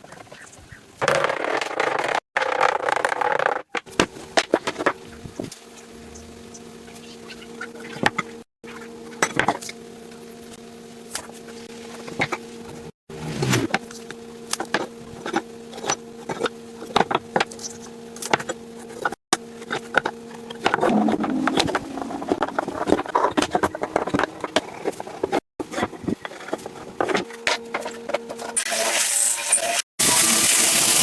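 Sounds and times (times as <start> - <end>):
steady hum: 3.9 - 28.7.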